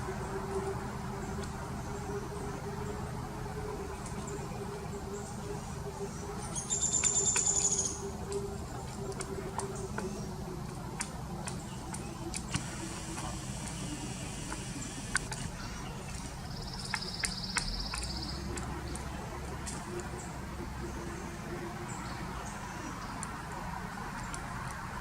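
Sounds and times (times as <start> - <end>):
steady low hum: 0.0 - 25.0
woodpecker tapping on bark: 16.1 - 20.1.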